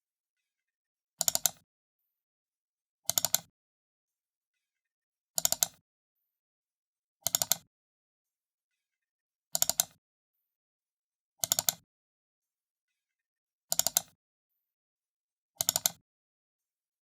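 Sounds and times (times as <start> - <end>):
computer mouse double-clicking: 1.2 - 1.6, 3.1 - 3.5, 5.4 - 5.8, 7.2 - 7.7, 9.5 - 10.0, 11.4 - 11.8, 13.7 - 14.2, 15.6 - 16.0.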